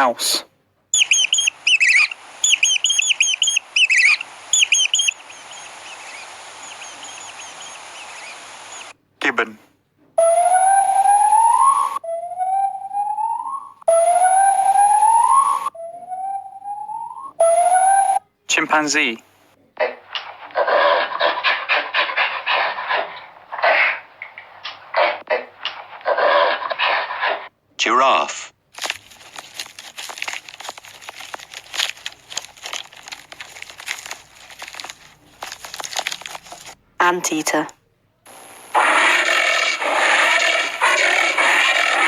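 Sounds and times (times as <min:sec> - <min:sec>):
gibbon whooping calls: 0:01.0 - 0:08.9
crackling crunching clicks: 0:28.7 - 0:36.8.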